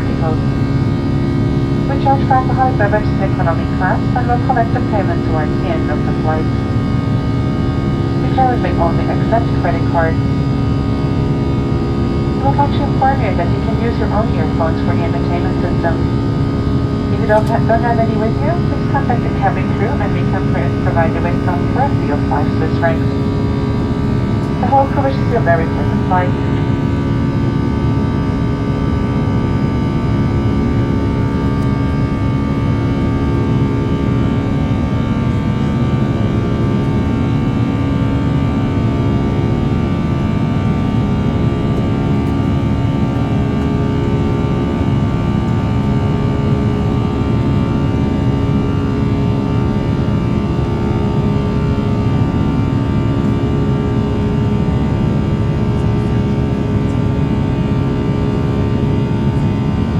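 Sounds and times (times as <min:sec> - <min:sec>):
jet engine roar in cabin: 0:00.0 - 0:59.9.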